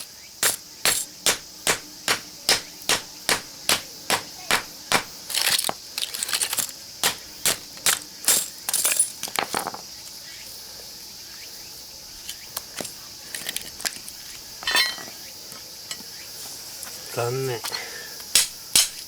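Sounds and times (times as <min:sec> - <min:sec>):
insect chirring: 0:00.0 - 0:19.0
metallic knocks on transformer core: 0:00.4 - 0:05.1, 0:18.3 - 0:19.0.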